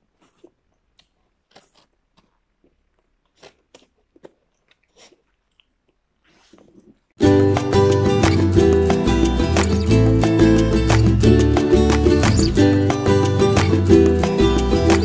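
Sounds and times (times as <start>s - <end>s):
chewing sandwich with crunches: 0.0s - 7.2s.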